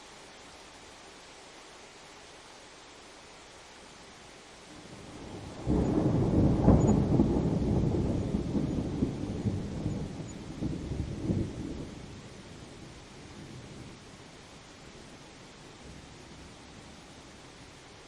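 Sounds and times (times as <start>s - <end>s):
steady rain: 0.0s - 18.0s
thunder rumble: 4.8s - 14.0s.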